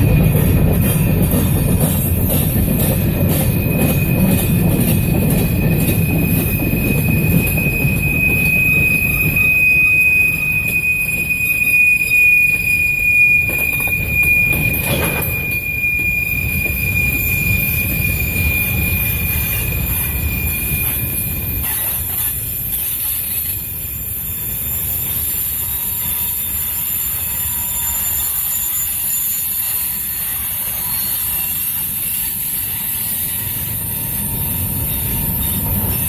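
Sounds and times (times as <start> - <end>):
freight train wheels rumbling: 0.0 - 36.0
high-pitched wheel squeal: 0.0 - 36.0.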